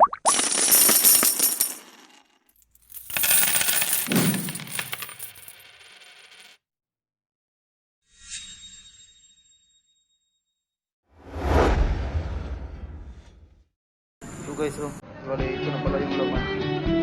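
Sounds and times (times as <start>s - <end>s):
bright metallic jingling: 2.6s - 5.8s
falling low swoosh: 11.2s - 13.5s.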